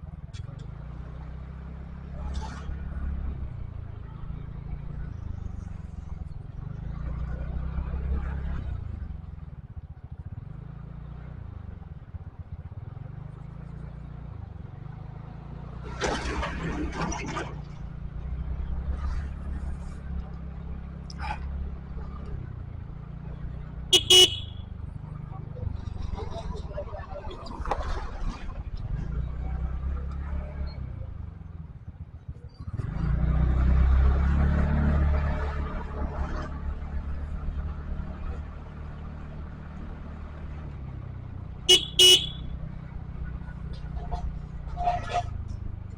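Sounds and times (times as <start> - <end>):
vehicle rumble: 0.0 - 45.9.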